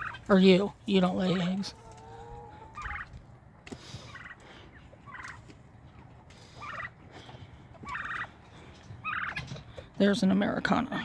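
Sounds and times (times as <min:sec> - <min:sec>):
turkey gobbling: 0:00.0 - 0:03.4, 0:04.0 - 0:07.1, 0:07.7 - 0:09.7.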